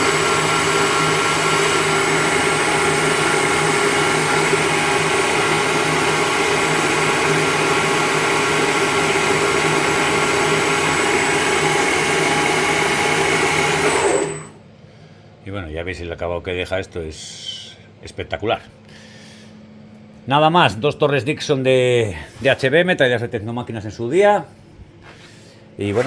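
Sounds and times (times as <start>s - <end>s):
lathe machine whine: 0.0s - 14.6s.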